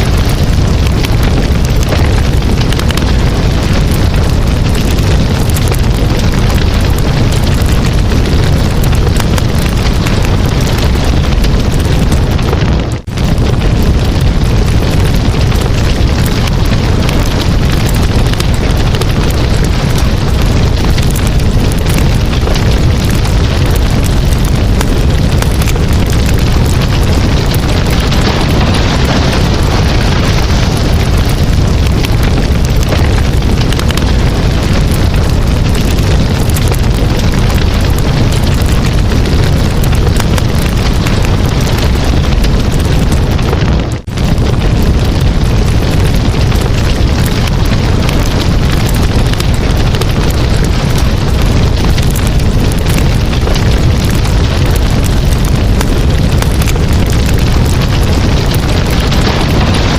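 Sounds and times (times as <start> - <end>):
campfire flames crackling: 0.0 - 59.9.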